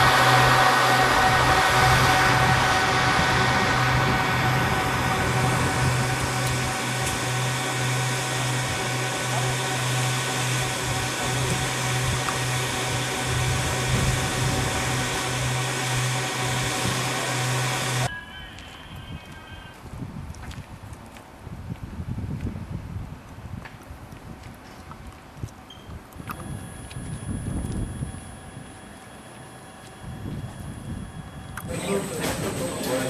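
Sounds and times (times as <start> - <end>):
low hum: 0.0 - 18.2, 26.2 - 33.0
airliner cabin roar: 0.0 - 19.1, 26.3 - 33.0.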